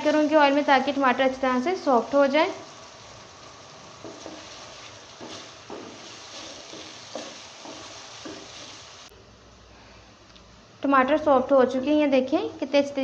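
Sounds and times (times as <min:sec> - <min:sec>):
vegetables sizzling in hot oil: 0:00.0 - 0:09.1
wooden spatula scraping and stirring: 0:01.8 - 0:09.1.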